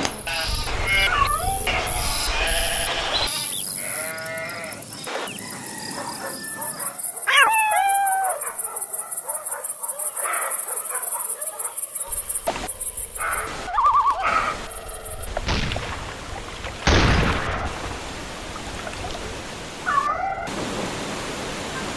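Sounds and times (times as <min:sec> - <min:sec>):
animal cries: 0:00.3 - 0:04.8, 0:05.6 - 0:08.8, 0:13.2 - 0:15.1.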